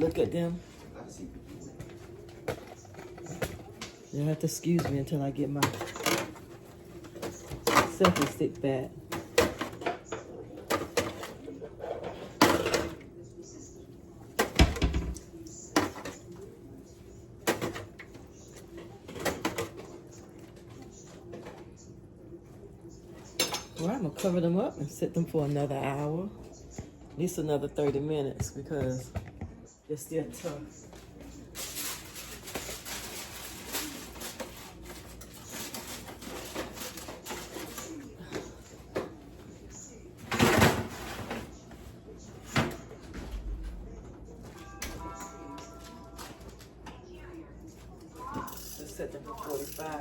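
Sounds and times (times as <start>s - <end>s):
knocks and clatter in kitchen: 1.6s - 13.2s, 14.2s - 16.5s, 17.4s - 21.8s, 26.7s - 39.5s, 40.2s - 47.1s
aluminum foil crinkling: 31.3s - 38.2s.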